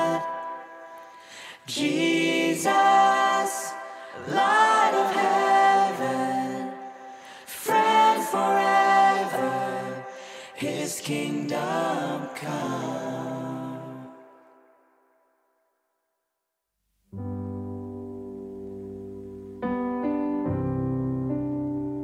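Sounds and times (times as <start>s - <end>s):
voices singing worship song: 0.0s - 14.9s.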